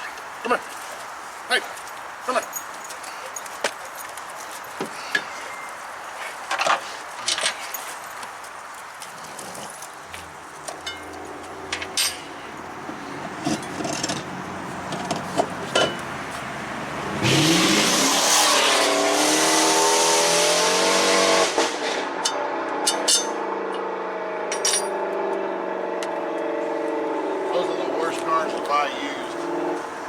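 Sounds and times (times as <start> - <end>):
sports car engine revving: 12.8 - 22.9, 23.5 - 30.0.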